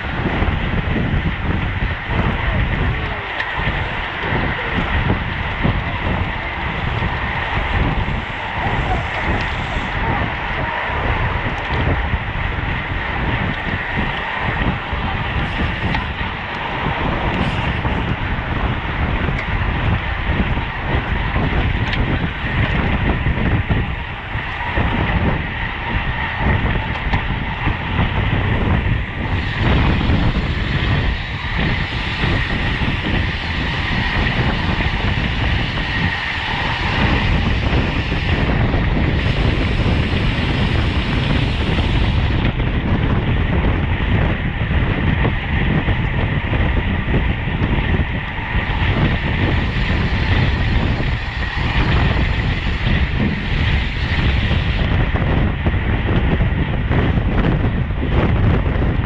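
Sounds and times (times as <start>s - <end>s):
thin high whine: 0.0s - 42.6s
bicycle tyres road rumble: 0.0s - 59.0s
wind rush on microphone: 0.0s - 59.0s.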